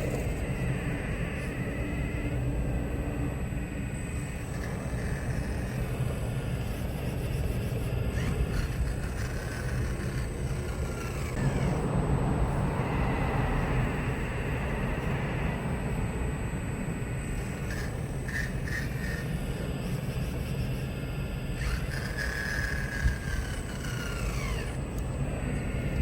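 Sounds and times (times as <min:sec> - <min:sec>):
faint hydraulic whine: 0:00.0 - 0:26.0
excavator engine rumbling: 0:04.1 - 0:14.0, 0:17.2 - 0:26.0.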